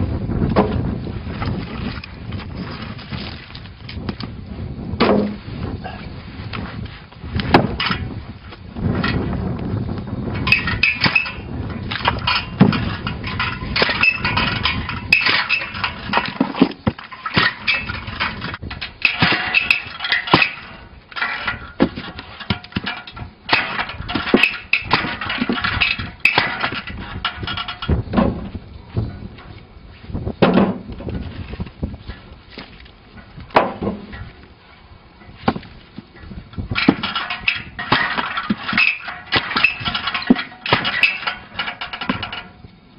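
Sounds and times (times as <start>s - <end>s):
metallic clanks and knocks: 7.5s - 8.1s, 10.4s - 29.6s, 30.4s - 34.4s, 35.2s - 42.7s.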